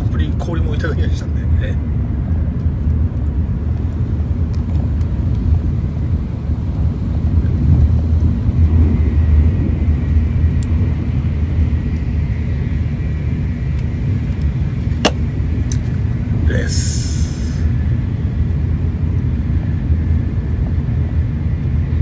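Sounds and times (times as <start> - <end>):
high-speed train rumble: 0.0 - 22.0.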